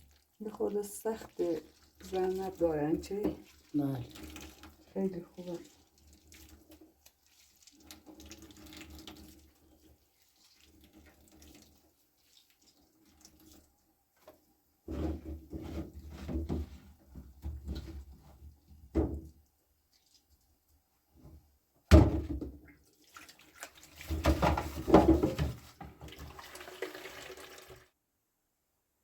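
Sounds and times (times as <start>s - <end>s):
water running and splashing: 0.0s - 13.7s, 22.8s - 27.9s.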